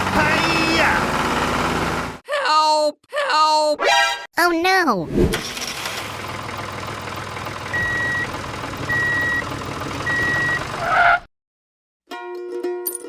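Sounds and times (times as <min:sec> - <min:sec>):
vehicle engine running: 0:00.0 - 0:02.2, 0:05.4 - 0:11.0
reversing alarm beeps: 0:07.7 - 0:08.3, 0:08.9 - 0:10.6
plucked-string music: 0:12.1 - 0:13.0.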